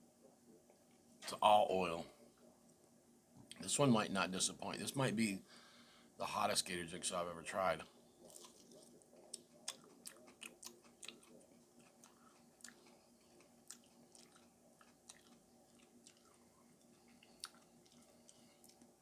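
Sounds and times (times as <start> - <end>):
faint chewing crunches: 7.8 - 19.0.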